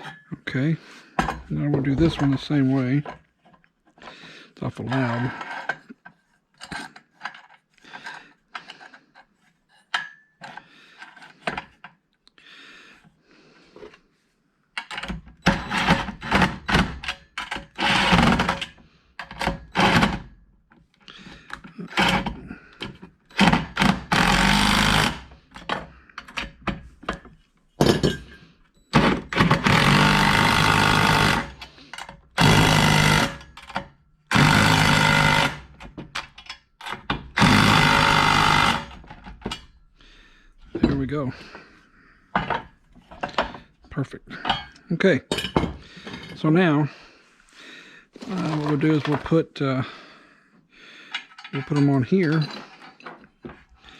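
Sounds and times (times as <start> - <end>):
clatter of parts handled: 4.9 - 12.0, 35.8 - 37.4, 48.2 - 49.4, 51.1 - 53.7
impact driver bursts: 15.6 - 18.8, 19.4 - 20.3, 21.8 - 26.4, 28.9 - 36.0, 36.9 - 39.4.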